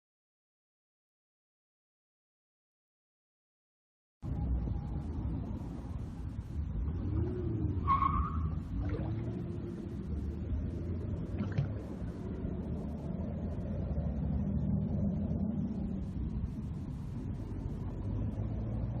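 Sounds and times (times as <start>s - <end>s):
road traffic rumble: 4.2s - 19.0s.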